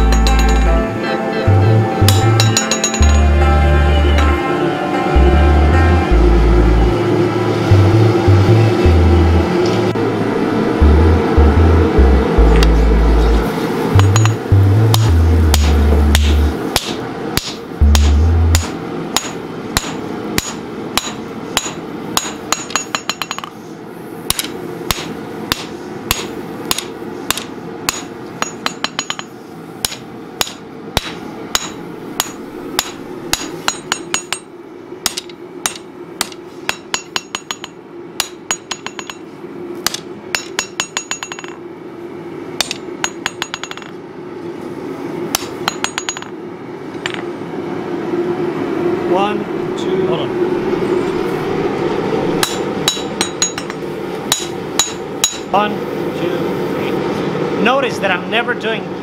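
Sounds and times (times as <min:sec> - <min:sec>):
hammer striking steel on anvil: 0:00.0 - 0:00.9, 0:02.0 - 0:03.5, 0:14.0 - 0:23.6, 0:24.3 - 0:41.6, 0:42.6 - 0:44.0, 0:45.3 - 0:46.4, 0:52.4 - 0:55.5.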